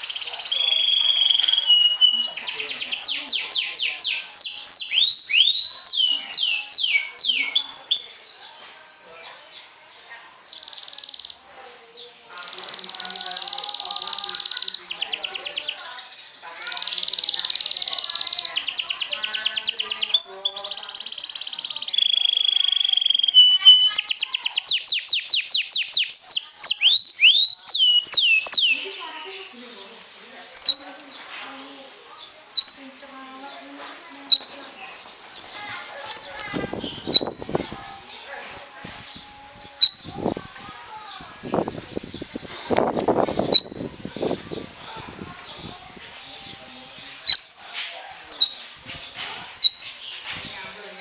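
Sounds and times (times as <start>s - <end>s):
canary singing: 0.0s - 51.0s.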